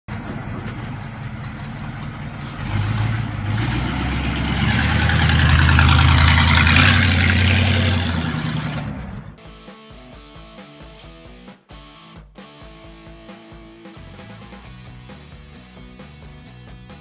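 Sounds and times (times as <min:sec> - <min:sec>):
car engine running: 0:00.1 - 0:09.4.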